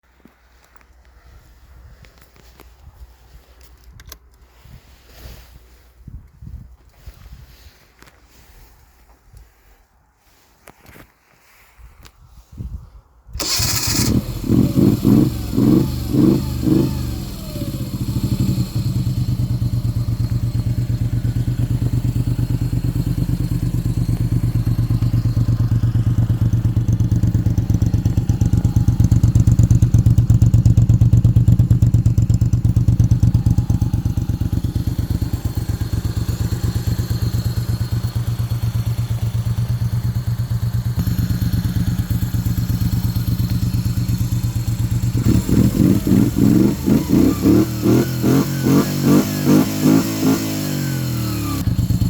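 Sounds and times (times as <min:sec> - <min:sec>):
motorcycle engine idling: 0:13.4 - 0:52.0.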